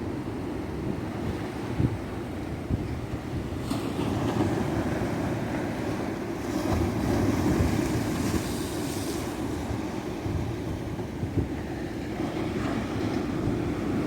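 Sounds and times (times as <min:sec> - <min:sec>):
ocean surf breaking on beach: 0:03.6 - 0:14.0.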